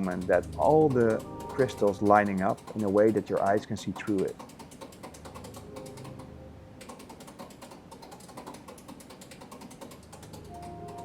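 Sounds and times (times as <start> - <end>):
rapid mechanical clicking: 0.0 - 11.0
low steady hum: 5.4 - 6.9.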